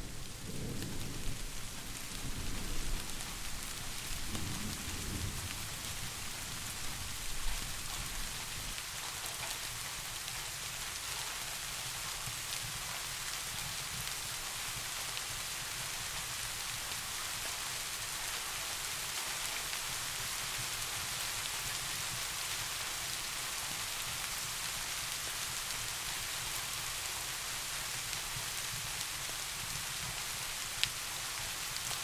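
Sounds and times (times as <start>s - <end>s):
distant thunder rumble: 0.0s - 8.8s
steady rain falling: 0.0s - 32.0s.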